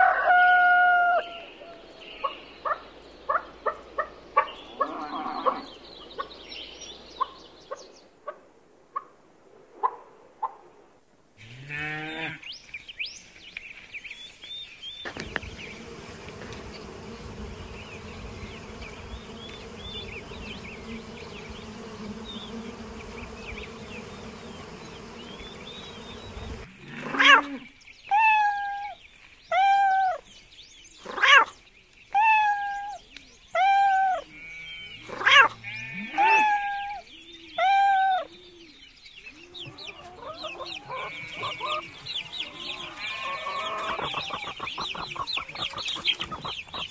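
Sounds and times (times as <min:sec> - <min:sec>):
birds chirping and chattering: 0:01.2 - 0:09.1, 0:11.7 - 0:46.9
honeybees buzzing: 0:15.0 - 0:26.7, 0:39.6 - 0:46.9.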